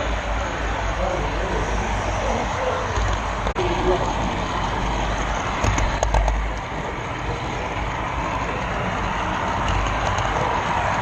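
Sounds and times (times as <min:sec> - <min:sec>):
wheels rumbling along track: 0:00.0 - 0:11.0
clicks over rail joints: 0:05.6 - 0:06.9, 0:08.4 - 0:11.0.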